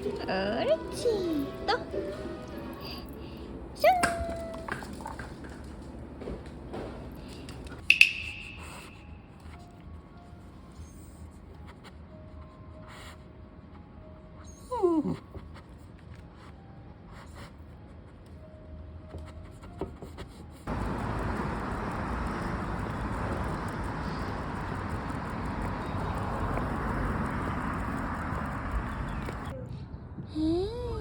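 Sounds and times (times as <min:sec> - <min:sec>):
dog whining: 0:00.1 - 0:05.8, 0:14.4 - 0:15.6.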